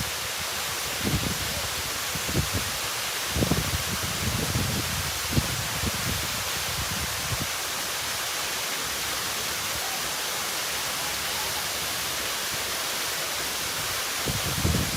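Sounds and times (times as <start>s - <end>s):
waterfall rushing: 0.0s - 14.9s
wind buffeting microphone: 1.0s - 7.5s, 14.2s - 14.9s.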